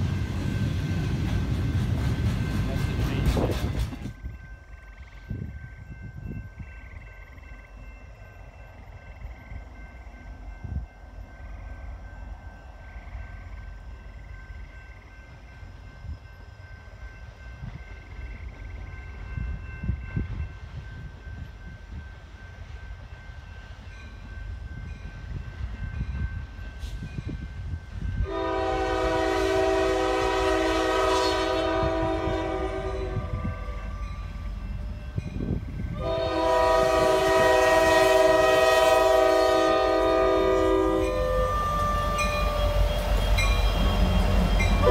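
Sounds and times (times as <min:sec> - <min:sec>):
distant train rumble: 0:00.0 - 0:44.9
locomotive air horn blast: 0:28.2 - 0:34.0, 0:36.0 - 0:44.9.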